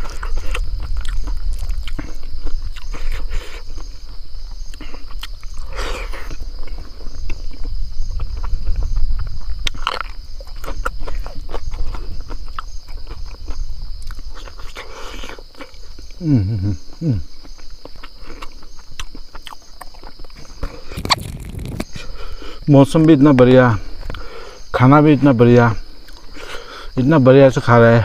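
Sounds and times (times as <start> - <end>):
person chewing and smacking: 0.0 - 16.2, 16.9 - 22.2
high insect drone: 0.0 - 28.0.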